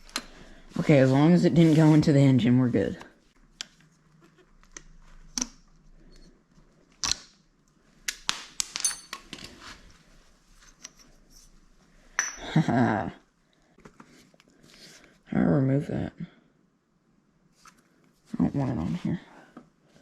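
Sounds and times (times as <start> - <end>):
metal parts and tools clinking: 8.6 - 9.6
person laughing: 12.4 - 13.2.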